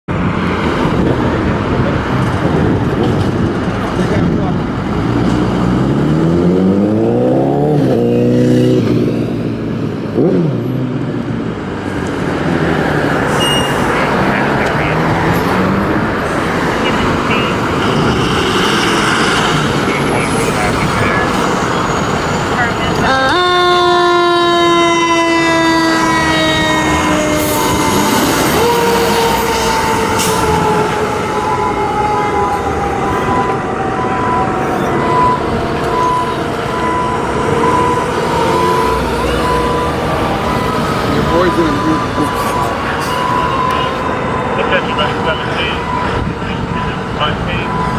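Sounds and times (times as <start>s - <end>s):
fire engine pulling away: 0.1s - 47.9s
siren sweep: 13.0s - 47.9s
fire engine air horn blasts: 22.6s - 31.9s.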